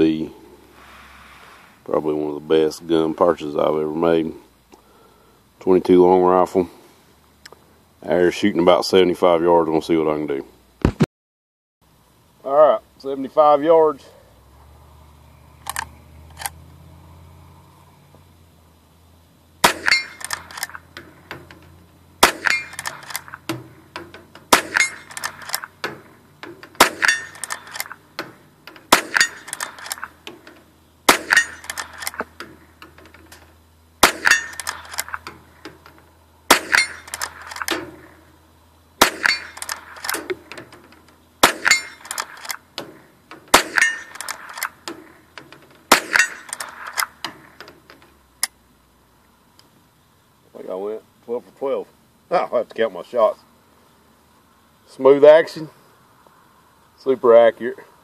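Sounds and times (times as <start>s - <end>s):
steel target ringing clang: 19.6s - 20.3s, 22.2s - 23.8s, 24.5s - 25.2s, 26.8s - 29.7s, 31.1s - 31.7s, 34.0s - 34.7s, 36.5s - 38.1s, 39.0s - 39.6s, 41.4s - 42.1s, 43.5s - 44.2s, 45.9s - 46.6s
rifle shots: 19.6s - 20.9s, 22.2s - 30.2s, 31.0s - 32.4s, 34.0s - 35.3s, 36.5s - 38.2s, 39.0s - 40.6s, 41.4s - 42.6s, 43.5s - 44.9s, 45.9s - 47.6s
rifle lever clicks: 19.8s - 20.8s, 22.7s - 23.4s, 26.8s - 28.0s, 28.9s - 30.1s, 34.2s - 35.3s, 41.6s - 42.6s.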